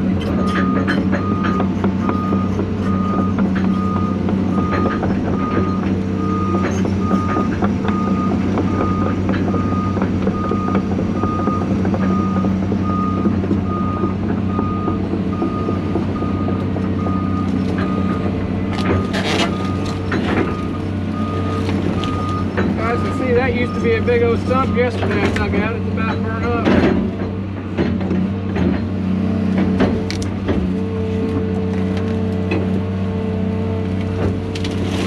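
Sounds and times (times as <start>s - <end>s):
excavator diesel engine running: 0.0s - 35.0s
travel alarm beeping: 0.4s - 18.3s, 18.9s - 24.8s.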